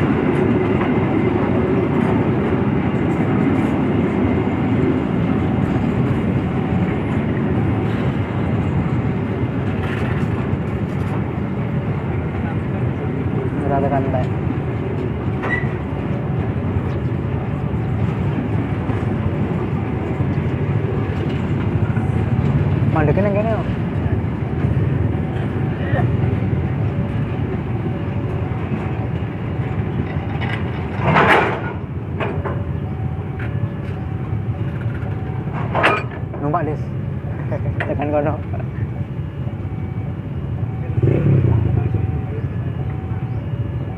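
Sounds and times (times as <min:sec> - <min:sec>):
train running: 0:00.0 - 0:43.9.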